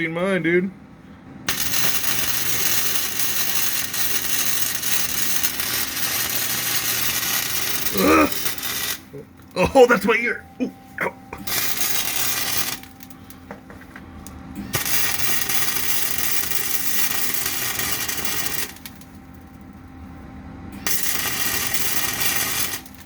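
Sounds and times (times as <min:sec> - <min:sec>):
low steady hum: 0:00.0 - 0:23.0
welder arc crackling: 0:01.5 - 0:10.2, 0:11.4 - 0:19.5, 0:20.8 - 0:23.0.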